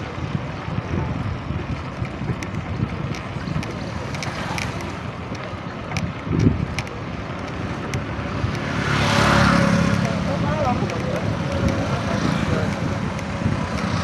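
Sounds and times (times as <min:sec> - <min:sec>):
road traffic: 0:00.0 - 0:14.0
wind buffeting microphone: 0:00.0 - 0:14.0
vehicle passing close: 0:07.2 - 0:14.0.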